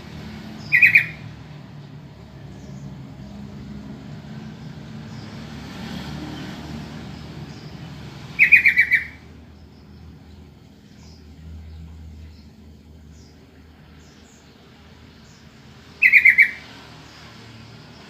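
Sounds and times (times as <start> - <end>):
bulbul chattering call: 0.6 - 1.3, 8.3 - 9.3, 15.3 - 16.7.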